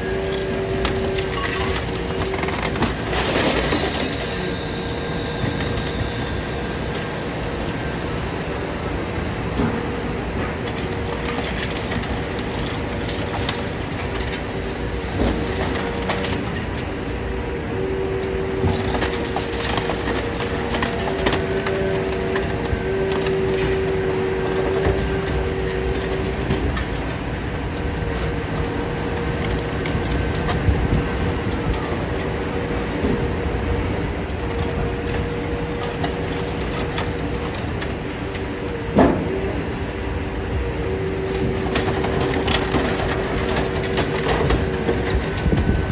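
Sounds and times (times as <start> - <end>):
hydraulic power unit humming: 0.0 - 45.9
scrap metal crushing and clanking: 0.1 - 8.6, 9.4 - 17.3, 17.9 - 39.7, 41.2 - 45.9.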